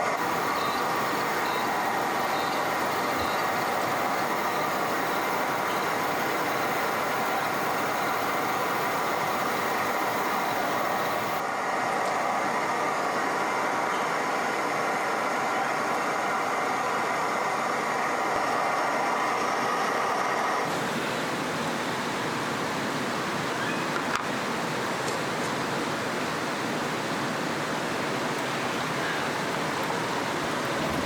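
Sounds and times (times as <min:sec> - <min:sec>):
river water rushing: 0:00.0 - 0:11.5, 0:20.6 - 0:31.0.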